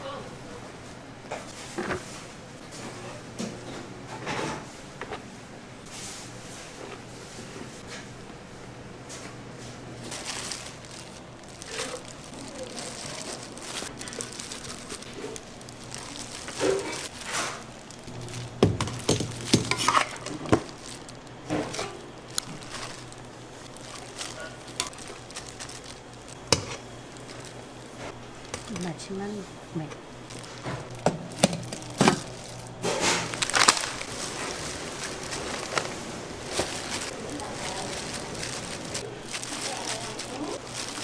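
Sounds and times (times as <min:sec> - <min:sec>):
steady low hum: 0:00.0 - 0:41.0
utensils and dishes clattering: 0:11.6 - 0:17.7, 0:18.6 - 0:20.8, 0:21.5 - 0:23.1, 0:30.4 - 0:41.0.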